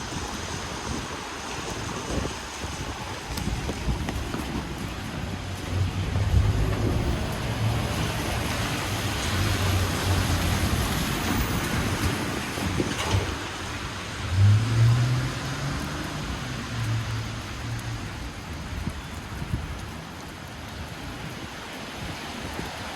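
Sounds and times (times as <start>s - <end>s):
tyres hissing on wet road: 0.0s - 22.9s
car engines running low: 0.1s - 20.3s
vehicle accelerating past: 14.3s - 17.4s.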